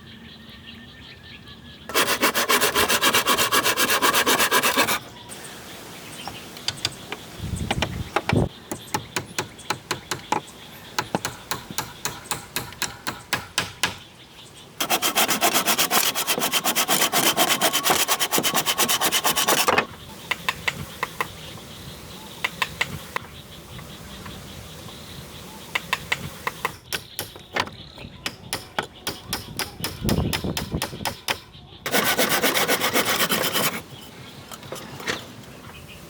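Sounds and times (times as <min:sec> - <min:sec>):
rapid rasping on wood: 0:01.9 - 0:05.1, 0:14.8 - 0:19.8, 0:31.9 - 0:33.8.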